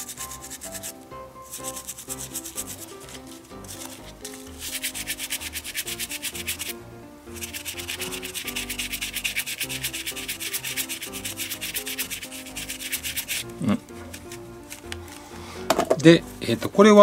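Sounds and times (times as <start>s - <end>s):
rubbing strokes on leather: 0.0s - 6.8s, 7.4s - 13.5s.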